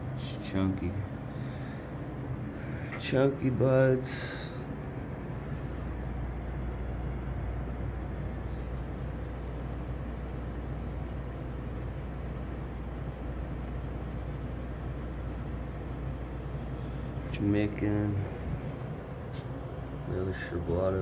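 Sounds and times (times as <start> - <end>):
equipment humming: 0.0 - 11.1, 15.7 - 21.0.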